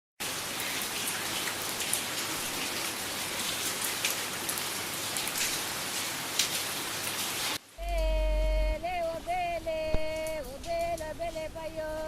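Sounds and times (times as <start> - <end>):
steady rain hiss: 0.2 - 12.0
raindrop ticks: 9.8 - 11.4.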